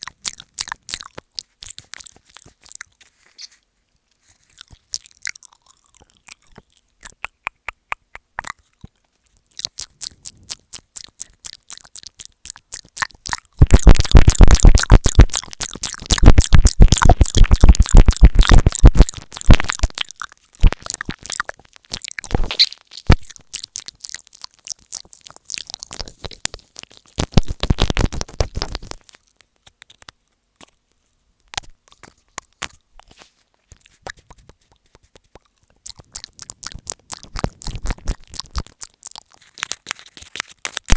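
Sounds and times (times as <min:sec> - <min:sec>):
wet mouth clicks on microphone: 0:06.0 - 0:09.0, 0:09.6 - 0:29.1, 0:33.8 - 0:40.9.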